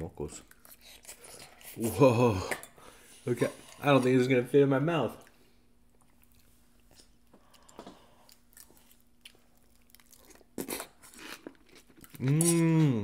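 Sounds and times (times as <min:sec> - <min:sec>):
crunchy wet chewing: 0:05.2 - 0:12.6.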